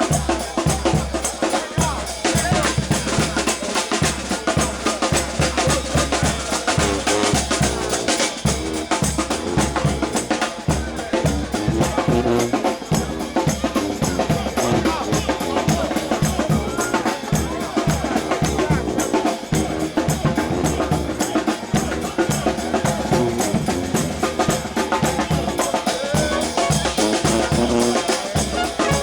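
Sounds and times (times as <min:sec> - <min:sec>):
bass drum beating: 0:00.0 - 0:29.0
brass band playing: 0:00.0 - 0:29.0
snare drum beating: 0:00.0 - 0:29.0.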